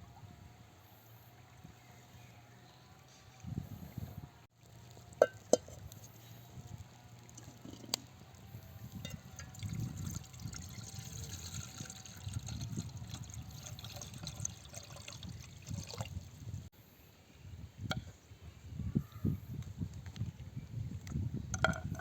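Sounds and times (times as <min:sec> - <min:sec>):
water pouring and splashing: 0:08.9 - 0:16.7.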